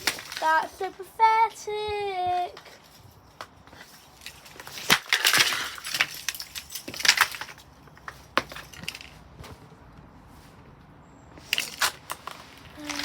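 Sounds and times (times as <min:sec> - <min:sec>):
fan heater being smashed: 0:00.0 - 0:00.7, 0:04.2 - 0:09.2, 0:11.4 - 0:13.0
pieces clattering: 0:00.0 - 0:00.9, 0:02.6 - 0:09.2, 0:11.4 - 0:13.0.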